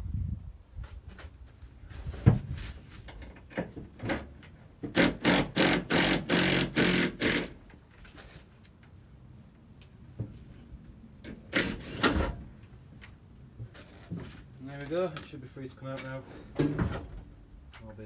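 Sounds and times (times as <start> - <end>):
ratchet wrench ratcheting: 5.0 - 7.6.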